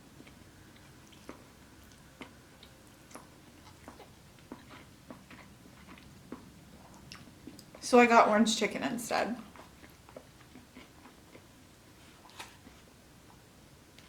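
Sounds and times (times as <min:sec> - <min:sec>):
chewing mouth clicks: 0:00.2 - 0:07.8.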